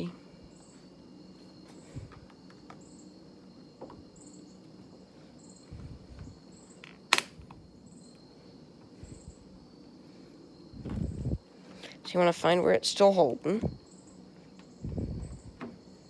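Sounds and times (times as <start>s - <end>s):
crickets chirping: 0.0s - 16.0s
sharp plastic snap: 7.1s - 7.5s.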